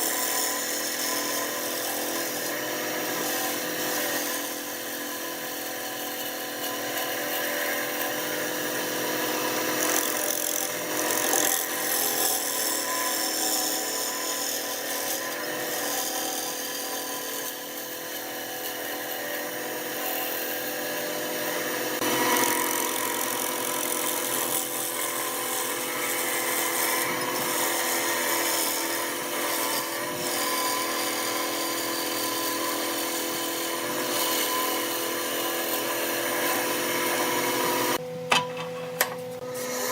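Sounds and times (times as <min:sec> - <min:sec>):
chisel scraping spinning wood: 0:00.0 - 0:38.0
wood lathe motor hum: 0:00.0 - 0:38.7, 0:39.4 - 0:39.9.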